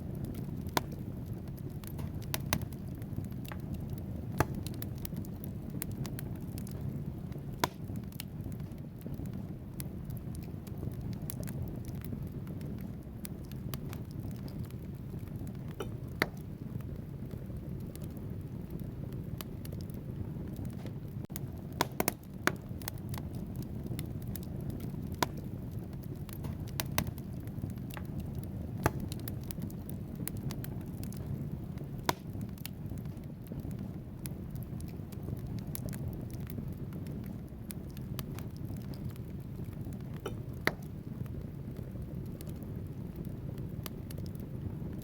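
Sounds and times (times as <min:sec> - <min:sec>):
logs crackling and popping: 0:00.0 - 0:45.0
low rumble of flames: 0:00.0 - 0:45.0.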